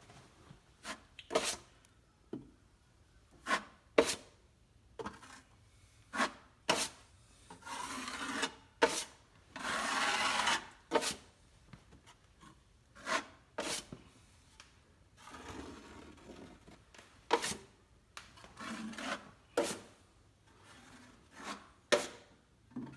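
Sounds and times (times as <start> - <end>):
drywall knife scraping compound: 0.8 - 1.8, 3.3 - 4.4, 5.0 - 11.3, 12.0 - 14.2, 15.1 - 17.8, 18.4 - 22.9.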